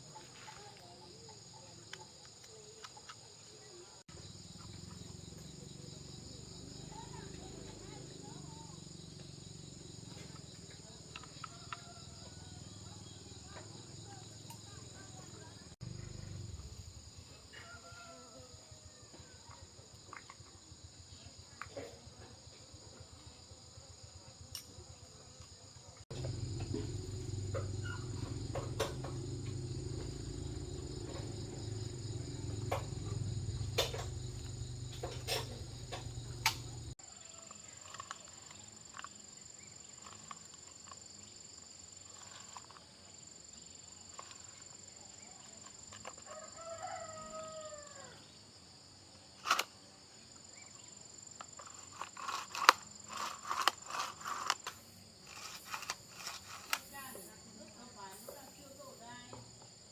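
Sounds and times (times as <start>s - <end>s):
insects buzzing: 0.0s - 59.9s
rooster crowing: 17.5s - 19.0s, 46.3s - 48.2s.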